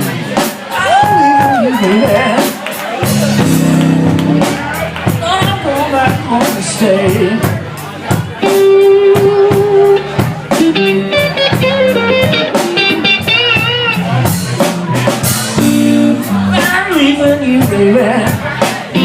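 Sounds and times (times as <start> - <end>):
bass guitar: 0.0 - 19.0
drums: 0.0 - 19.0
electric guitar lead: 1.3 - 7.5, 8.1 - 19.0
person singing: 5.4 - 7.6, 8.4 - 10.1, 15.6 - 19.0.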